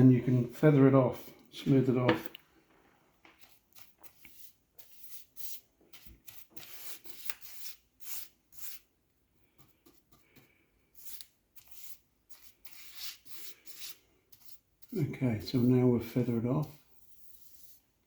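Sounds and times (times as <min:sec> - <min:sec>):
paintbrush swishing: 0:00.0 - 0:02.0, 0:03.4 - 0:08.8, 0:11.0 - 0:18.0.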